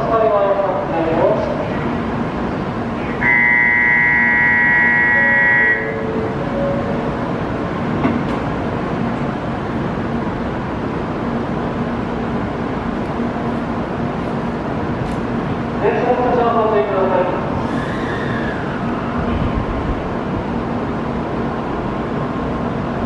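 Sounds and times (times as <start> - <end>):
train running noise and hum: 0.0 - 23.0
steady electronic tone: 3.1 - 6.2.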